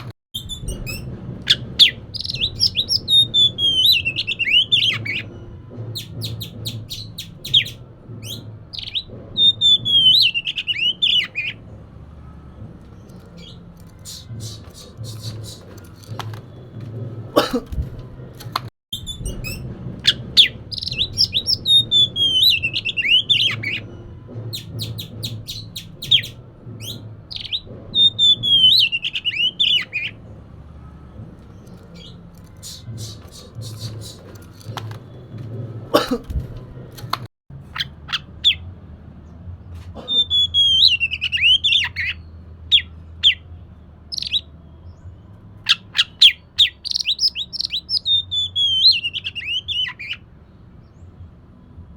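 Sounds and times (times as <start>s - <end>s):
songbird singing whistled notes: 0.4s - 5.4s, 6.0s - 11.6s, 12.9s - 15.8s, 19.0s - 30.2s, 31.5s - 35.2s, 40.1s - 43.4s, 44.1s - 50.2s.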